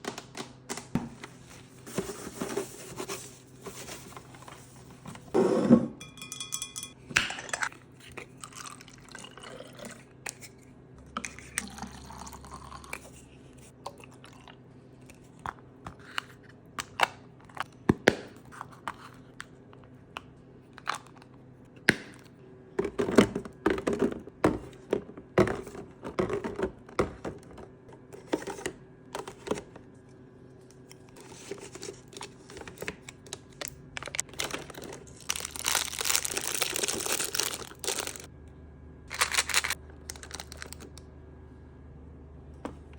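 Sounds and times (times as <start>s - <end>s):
items clinking in a fridge: 0.0s - 7.7s, 20.8s - 30.0s, 30.7s - 38.3s.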